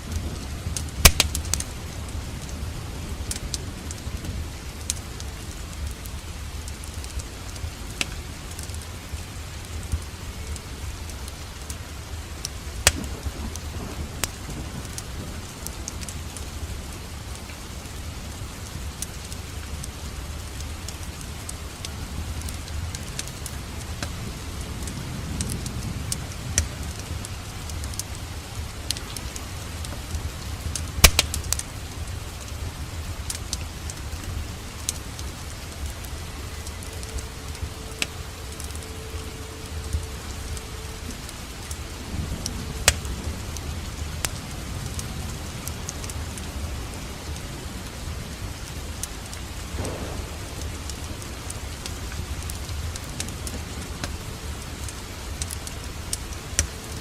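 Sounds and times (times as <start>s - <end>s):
steady rain: 0.0s - 57.0s
wood fire crackling and popping: 0.0s - 57.0s.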